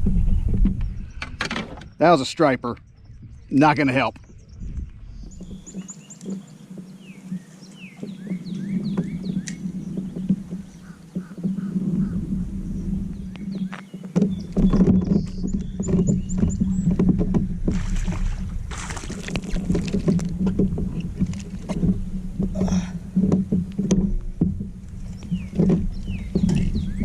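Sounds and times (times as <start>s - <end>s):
bird chirping: 0.2s - 17.0s, 25.0s - 27.0s
knocks and clatter of gear: 13.2s - 17.8s, 18.4s - 27.0s
water splashing: 14.3s - 27.0s.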